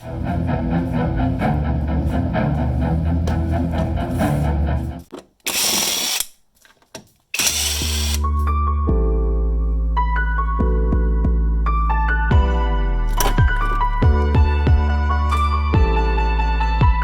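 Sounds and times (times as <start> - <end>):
rhythmic background music: 10.6 - 17.0.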